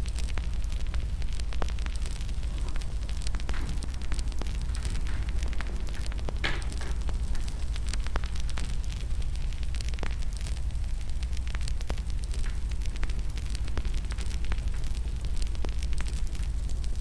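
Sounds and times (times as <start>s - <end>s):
low rumble: 0.0s - 15.6s
fire crackling and popping: 0.0s - 17.0s.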